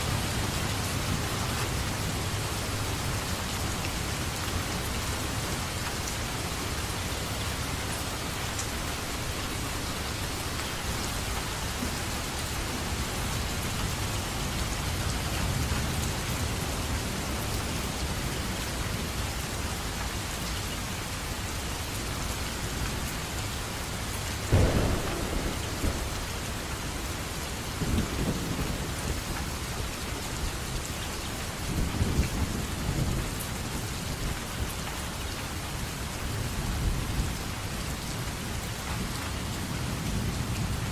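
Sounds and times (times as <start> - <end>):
steady rain: 0.0 - 40.9
thunder: 24.5 - 29.2.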